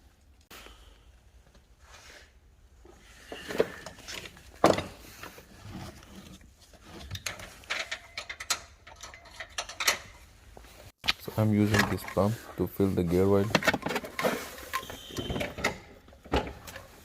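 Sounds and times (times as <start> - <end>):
tools knocking and clicking: 7.0 - 10.2.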